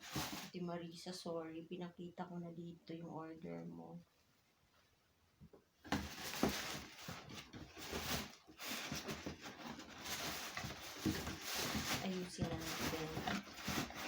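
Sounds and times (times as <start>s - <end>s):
plastic packaging crinkling: 5.9s - 14.0s.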